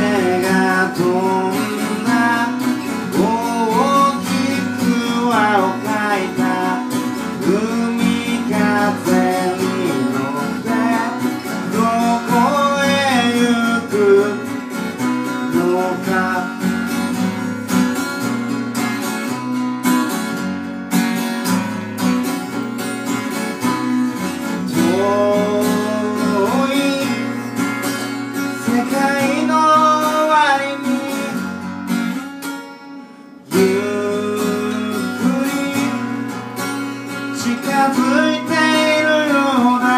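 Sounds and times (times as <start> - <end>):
person singing: 0.0 - 17.3, 24.6 - 27.7, 28.5 - 31.6, 33.5 - 36.6, 37.2 - 39.9
acoustic guitar strumming: 0.0 - 39.9.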